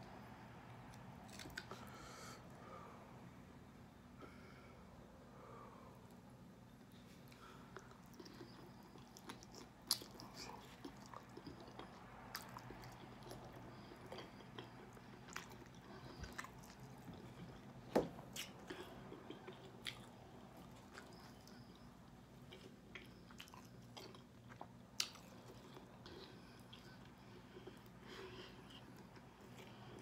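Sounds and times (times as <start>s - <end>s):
chewing and biting chicken wings: 7.7s - 28.0s.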